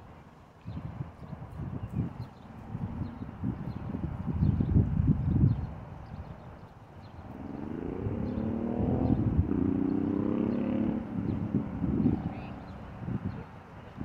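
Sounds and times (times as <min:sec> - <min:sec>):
car engine accelerating: 0:07.2 - 0:12.8.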